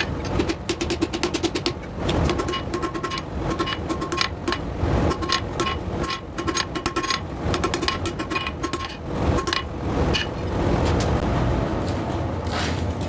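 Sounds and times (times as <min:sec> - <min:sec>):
hammer on hot steel on anvil: 0:00.0 - 0:10.3
steady low rumble: 0:00.0 - 0:13.0.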